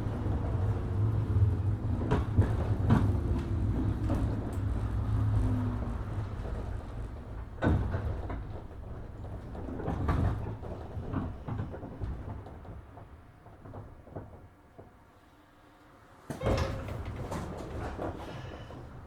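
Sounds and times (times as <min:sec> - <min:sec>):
sliding train doors clattering: 0:00.0 - 0:15.2, 0:16.2 - 0:19.0
electric train rumble: 0:00.0 - 0:19.0.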